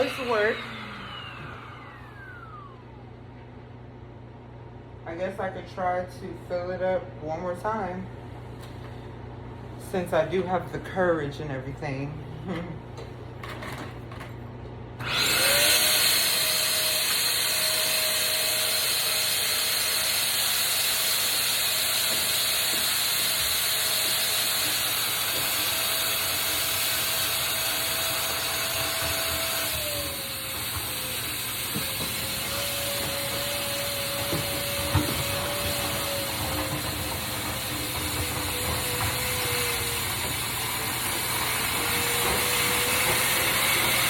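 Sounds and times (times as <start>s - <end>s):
vacuum sucking water: 0.0s - 3.0s
vacuum cleaner motor running: 0.0s - 3.3s, 15.0s - 44.0s.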